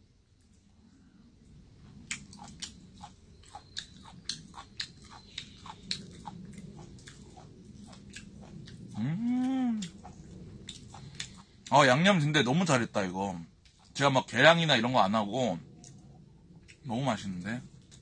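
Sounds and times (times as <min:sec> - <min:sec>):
crunchy chewing: 0:01.4 - 0:14.8, 0:15.6 - 0:18.0
person humming: 0:09.0 - 0:10.0.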